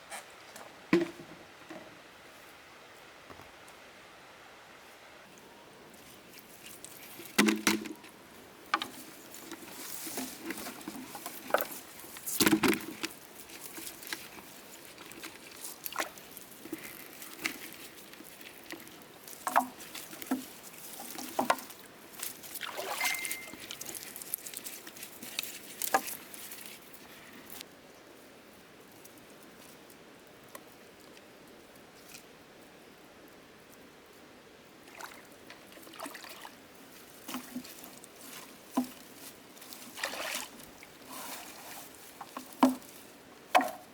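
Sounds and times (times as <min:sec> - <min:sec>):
rustling: 0:06.0 - 0:27.6, 0:36.8 - 0:43.9
light splashy patter: 0:08.8 - 0:26.8, 0:37.2 - 0:43.0
brief high squeak: 0:23.0 - 0:23.6.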